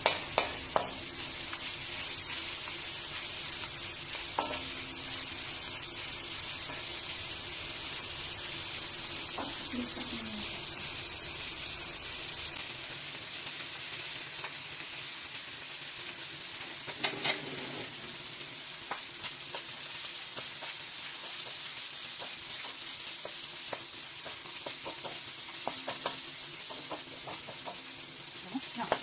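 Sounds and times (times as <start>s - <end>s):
spatula knocking against pan: 0.0s - 1.0s, 23.7s - 27.9s
chicken sizzling in a wok: 0.0s - 29.0s.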